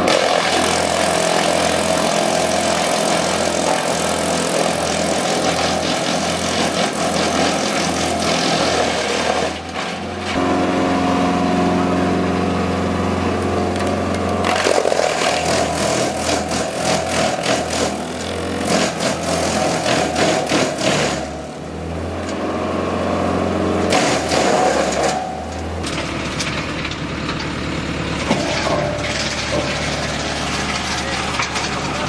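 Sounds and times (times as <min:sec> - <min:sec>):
diesel wood chipper running: 0:00.0 - 0:32.0
branches cracking and splintering: 0:13.8 - 0:21.2.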